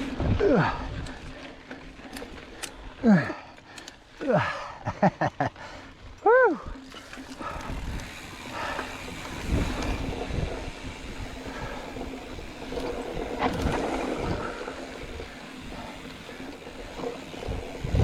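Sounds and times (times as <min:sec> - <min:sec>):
bike thudding and rattling over bumps: 0:00.0 - 0:04.2, 0:04.8 - 0:18.0
bike tyres rolling over rocky dirt: 0:00.0 - 0:18.0
wind noise on microphone: 0:07.4 - 0:15.3, 0:17.2 - 0:18.0.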